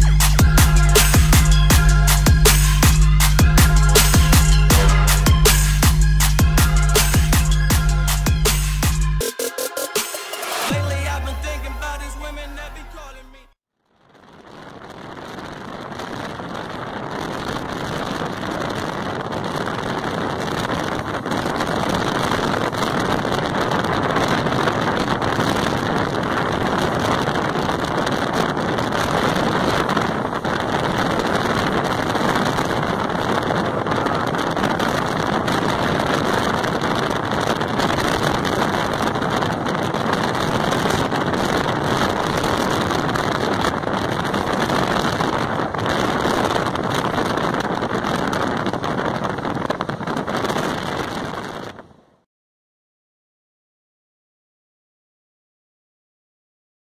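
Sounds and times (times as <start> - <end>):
wind rushing: 0.0 - 11.7, 14.2 - 52.2
wind buffeting microphone: 14.1 - 52.2.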